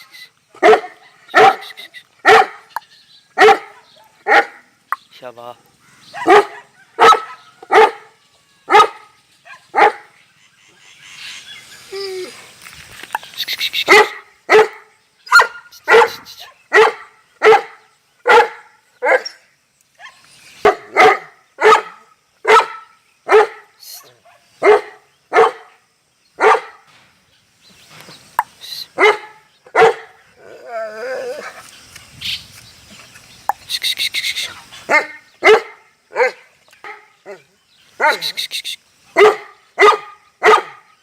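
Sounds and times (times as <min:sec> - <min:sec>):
dog barking: 0:00.6 - 0:02.7, 0:03.4 - 0:04.6, 0:06.1 - 0:08.1, 0:08.7 - 0:10.1, 0:13.9 - 0:19.4, 0:20.0 - 0:23.7, 0:24.3 - 0:25.7, 0:26.4 - 0:26.8, 0:29.0 - 0:30.2, 0:34.9 - 0:37.4, 0:38.0 - 0:38.4, 0:39.2 - 0:40.9.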